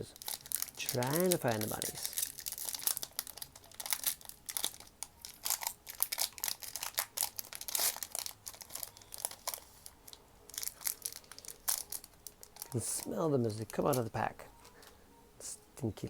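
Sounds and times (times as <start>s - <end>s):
foil wrapper crinkling: 0.0s - 14.9s.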